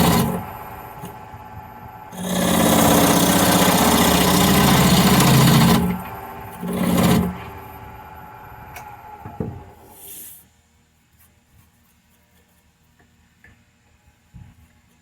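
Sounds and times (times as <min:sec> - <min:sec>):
wood lathe motor humming: 0:00.0 - 0:09.9.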